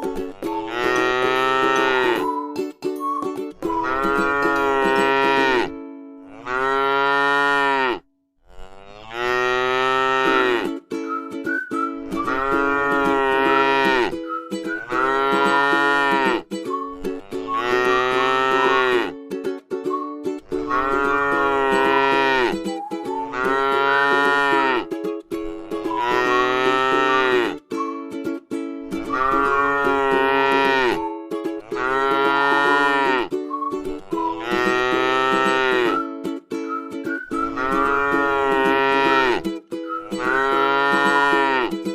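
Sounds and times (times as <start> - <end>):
cow mooing: 0.7 - 2.2, 3.8 - 10.7, 12.3 - 14.1, 14.8 - 16.4, 17.4 - 19.1, 20.6 - 22.5, 23.3 - 24.9, 25.8 - 27.6, 29.2 - 31.0, 31.7 - 33.3, 34.3 - 36.0, 37.5 - 39.4, 40.2 - 41.7.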